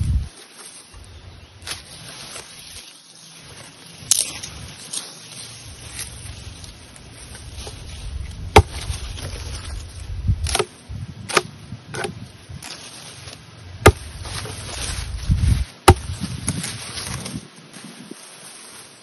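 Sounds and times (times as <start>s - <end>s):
wood being chopped: 8.5s - 9.0s, 10.4s - 10.7s, 11.3s - 12.2s, 13.8s - 14.6s, 15.8s - 16.6s.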